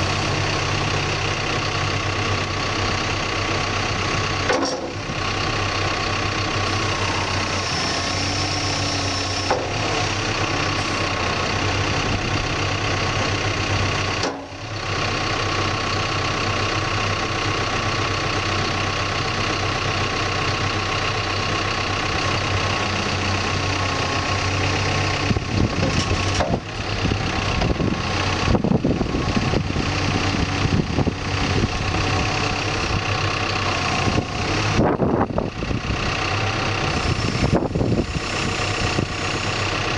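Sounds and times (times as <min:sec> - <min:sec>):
diesel engine idling: 0:00.0 - 0:39.9
clunks and knocks: 0:04.4 - 0:05.1, 0:09.2 - 0:10.3, 0:14.2 - 0:14.6, 0:25.6 - 0:26.7.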